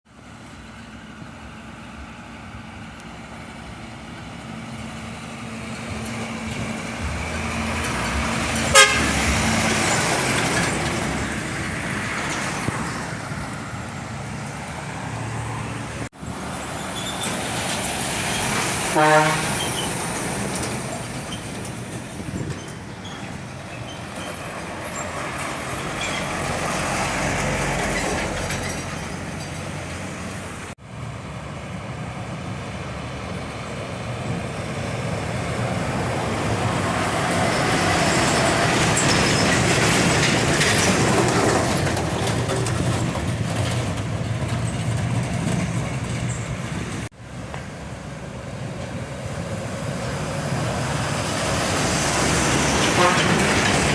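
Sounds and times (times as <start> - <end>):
large vehicle engine hum: 0.1 - 53.9
rumbling road noise: 0.1 - 53.9.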